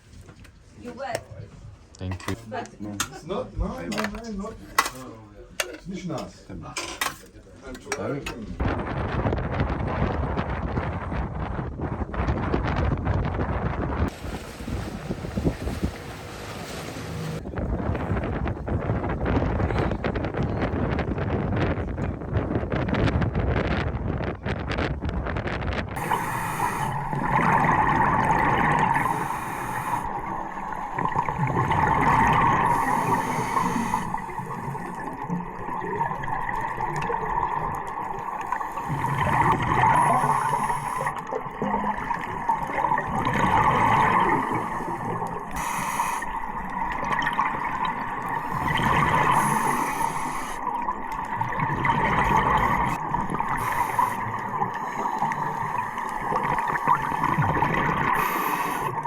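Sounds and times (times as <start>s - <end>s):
muffled underwater hum: 8.6s - 59.0s
scuba regulator bubbling exhalations: 25.9s - 59.0s.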